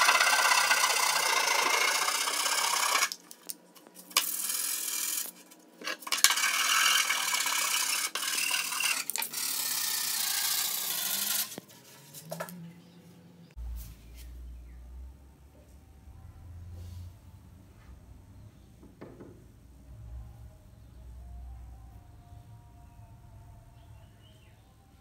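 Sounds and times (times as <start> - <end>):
file scraping wood: 5.8 - 9.3.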